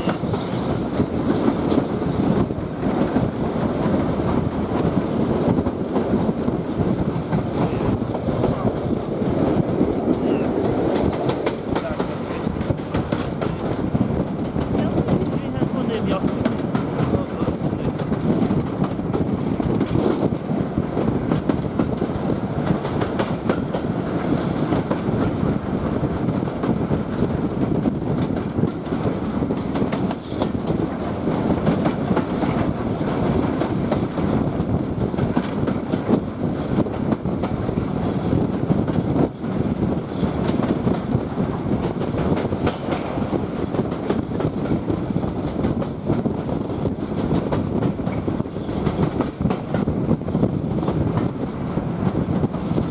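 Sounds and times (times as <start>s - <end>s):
wheels clicking over rail joints: 0.0s - 17.2s, 28.0s - 51.6s
train coaches rumbling on track: 0.0s - 52.9s.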